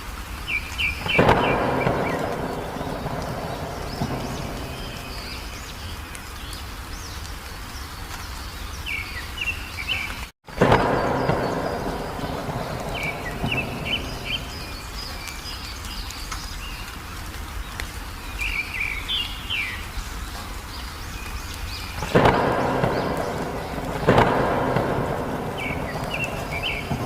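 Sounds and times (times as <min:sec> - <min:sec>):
steady rain: 0:00.0 - 0:27.0
small bird chirping: 0:00.5 - 0:07.2, 0:07.8 - 0:17.0, 0:18.3 - 0:27.0
thunder claps rumbling: 0:01.0 - 0:06.3, 0:10.5 - 0:16.0, 0:21.7 - 0:27.0.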